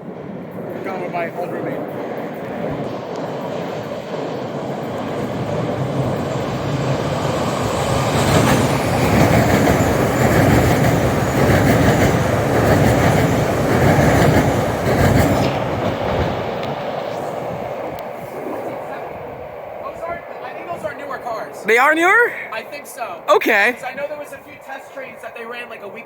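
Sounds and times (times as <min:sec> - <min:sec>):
subway train wheels clattering: 0:00.0 - 0:21.6.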